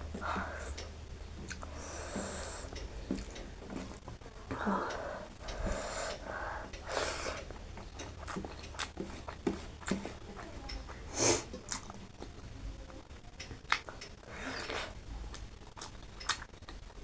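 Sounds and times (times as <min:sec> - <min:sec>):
heavy breathing: 0:00.0 - 0:00.9, 0:01.6 - 0:07.6
chewing clicks: 0:00.8 - 0:01.8, 0:04.9 - 0:12.4, 0:13.4 - 0:17.0
sharp sniffs: 0:05.6 - 0:07.4, 0:11.1 - 0:11.5.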